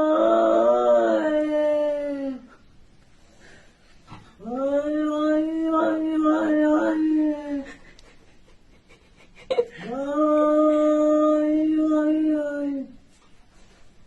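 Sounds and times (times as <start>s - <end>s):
dog howling: 0.0s - 2.5s, 4.4s - 7.6s.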